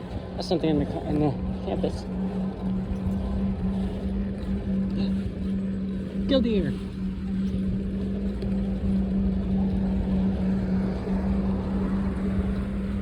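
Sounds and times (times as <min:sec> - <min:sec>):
bike riding hum: 0:00.0 - 0:13.0
road rumble: 0:00.0 - 0:13.0.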